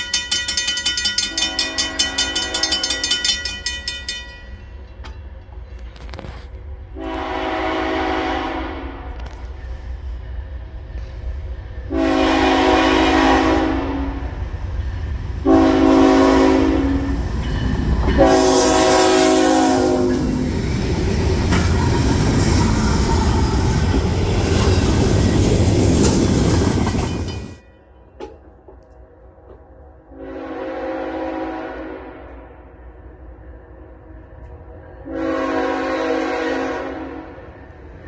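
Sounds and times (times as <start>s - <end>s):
freight train rumble: 0.0s - 38.0s
locomotive chime horn blasts: 1.0s - 3.4s, 7.0s - 9.2s, 11.9s - 14.4s, 15.4s - 17.2s, 18.1s - 20.4s, 30.1s - 32.5s, 35.0s - 37.4s.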